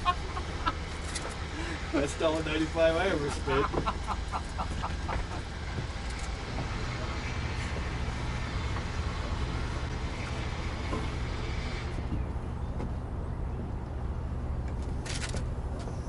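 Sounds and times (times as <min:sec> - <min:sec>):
low mechanical drone: 0:00.0 - 0:16.0.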